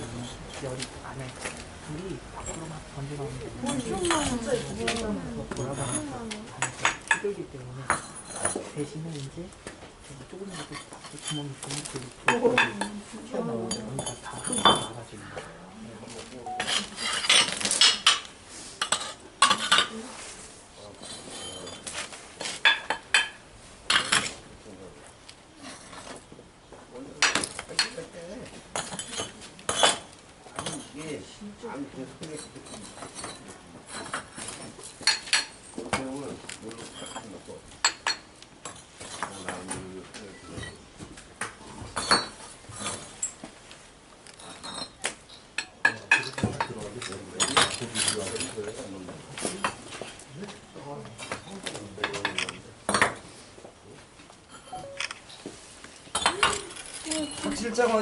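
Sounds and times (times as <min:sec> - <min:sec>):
hard objects clinking together: 0:16.5 - 0:19.9, 0:56.1 - 0:57.8
brief ringing tones: 0:54.7 - 0:55.2.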